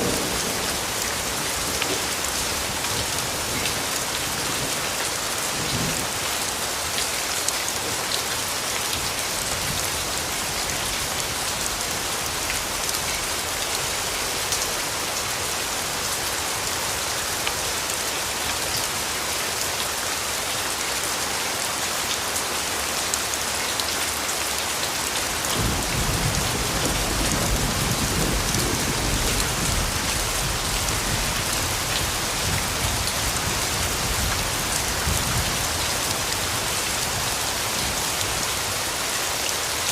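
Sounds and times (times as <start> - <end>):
distant thunder rumble: 0.0 - 3.6
rain pattering: 0.0 - 39.9.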